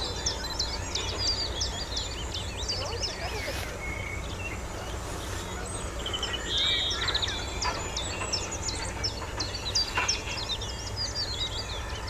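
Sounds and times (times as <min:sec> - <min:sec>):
songbirds chirping: 0:00.0 - 0:12.0
bright bird trill: 0:05.6 - 0:12.0.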